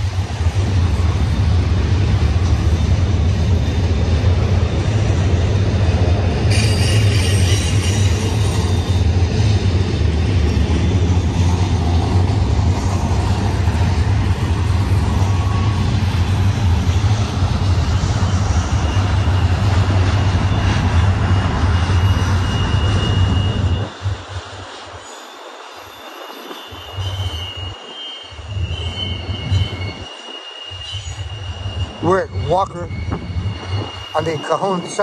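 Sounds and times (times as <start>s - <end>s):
train wheels rumbling on rail: 0.0s - 35.0s
high-pitched wheel squeal: 6.5s - 9.2s, 17.9s - 24.3s, 25.0s - 35.0s.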